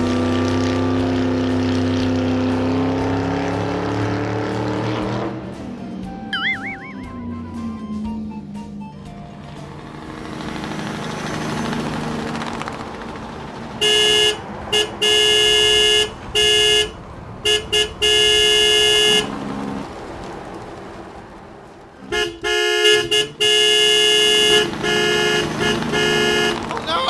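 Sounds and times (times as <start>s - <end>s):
vehicle horn honking: 13.8s - 19.3s, 22.0s - 26.7s.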